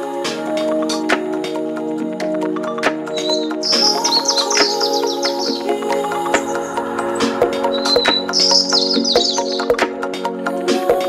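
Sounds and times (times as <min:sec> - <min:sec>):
soft background music chords: 0:00.0 - 0:11.0
birds chirping: 0:02.9 - 0:10.1.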